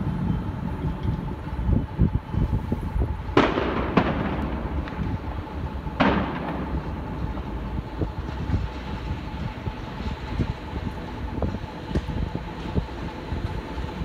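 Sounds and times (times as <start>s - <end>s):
passing train rumble: 0.0s - 14.0s
firecracker bangs: 3.3s - 9.0s.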